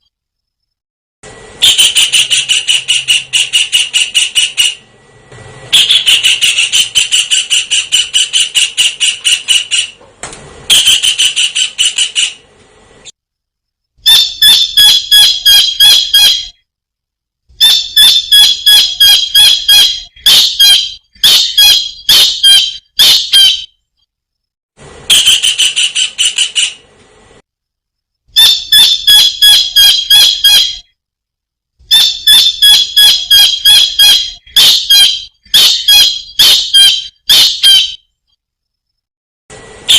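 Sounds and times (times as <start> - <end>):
kingfisher calling: 1.6 - 4.8, 5.7 - 10.0.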